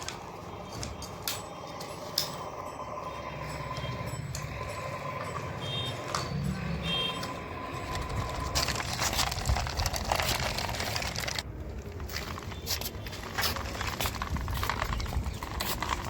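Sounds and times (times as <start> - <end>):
dirt scraping against plastic: 12.0 - 16.0.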